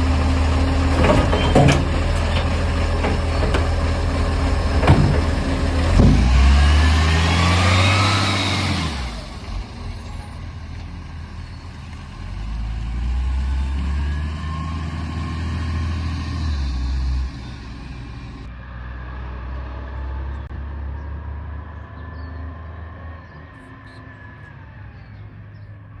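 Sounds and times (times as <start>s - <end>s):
diesel truck engine revving: 0.0s - 23.4s
sharp knocks: 1.0s - 6.8s.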